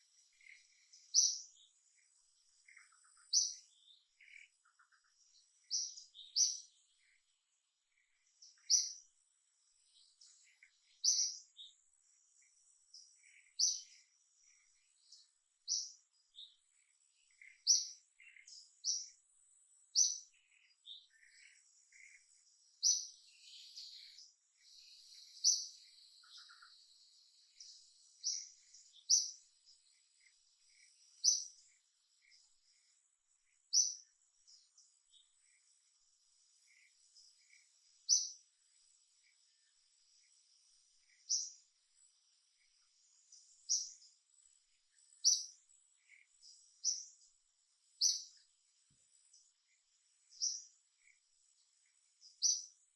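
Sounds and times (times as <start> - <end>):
bird chirping: 0.0 - 52.9
insect drone: 9.7 - 52.9.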